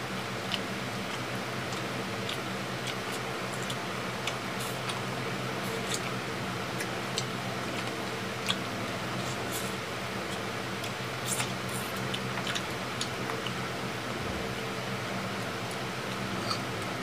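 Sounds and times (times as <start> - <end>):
chewing and lip smacks: 0.4 - 13.6.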